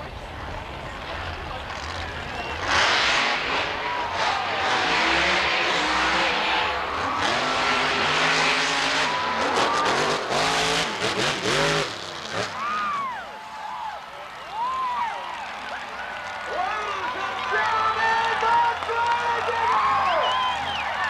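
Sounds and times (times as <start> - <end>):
monster truck engine revving: 1.0 - 13.2, 19.6 - 21.0.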